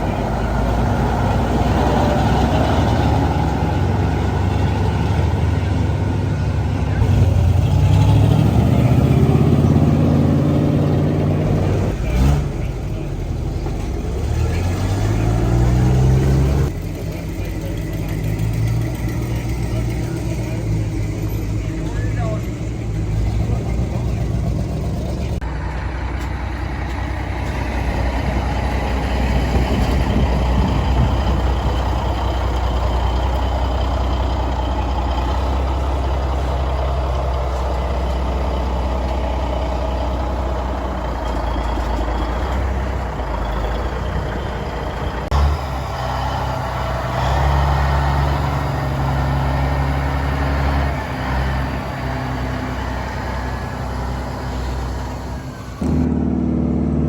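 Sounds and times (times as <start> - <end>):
truck engine rumbling: 0.0 - 57.0.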